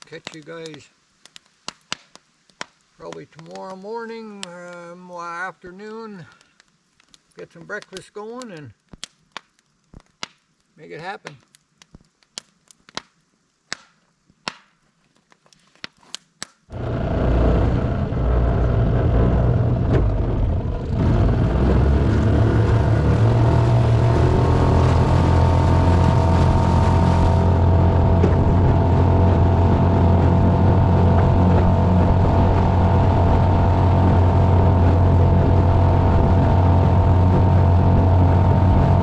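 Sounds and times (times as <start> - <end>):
campfire crackling pops: 0.0 - 16.9, 21.6 - 36.6
boat motor running: 16.7 - 39.0.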